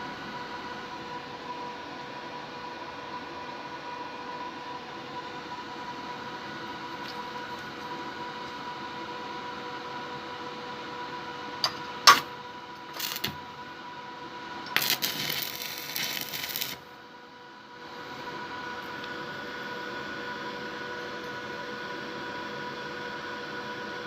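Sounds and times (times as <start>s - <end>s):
welding machine electrical hum: 0.0s - 24.0s
welding arc crackling: 12.9s - 13.4s, 14.7s - 16.9s.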